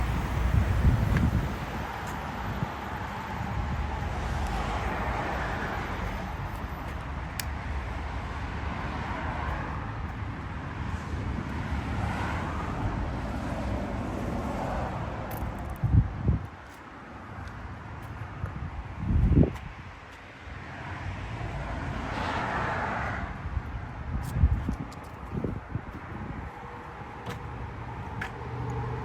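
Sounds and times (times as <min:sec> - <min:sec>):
wind on microphone: 0:00.0 - 0:06.4, 0:08.8 - 0:16.6, 0:18.4 - 0:20.0, 0:23.2 - 0:27.0
vehicles passing: 0:00.0 - 0:29.0.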